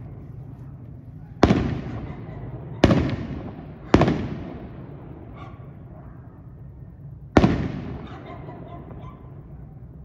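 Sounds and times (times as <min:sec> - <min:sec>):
fireworks bangs echoing: 0:00.9 - 0:06.0, 0:07.3 - 0:09.4.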